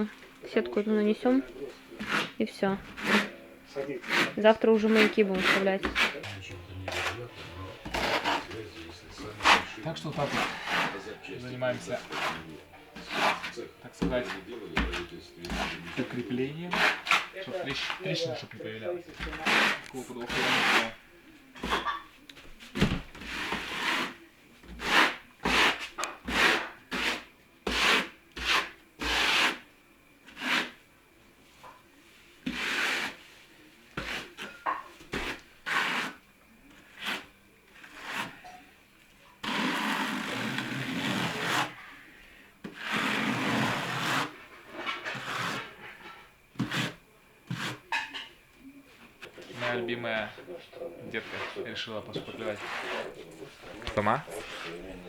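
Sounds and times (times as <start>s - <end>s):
spatula scraping plaster: 1.9s - 18.2s, 19.1s - 21.0s, 22.8s - 29.6s, 30.2s - 30.8s, 32.4s - 36.2s, 36.8s - 38.5s, 39.4s - 41.8s, 42.6s - 48.1s, 50.8s - 55.0s.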